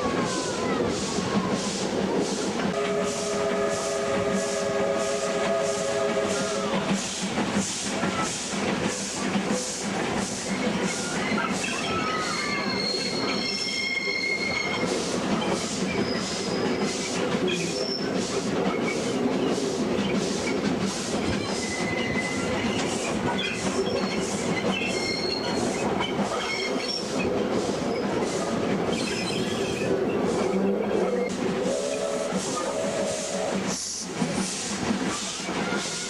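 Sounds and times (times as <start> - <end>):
steam locomotive exhaust beats: 0.0 - 36.0
train running noise: 0.0 - 36.0
wheel squeals: 10.5 - 19.6, 21.3 - 27.2, 27.9 - 31.3.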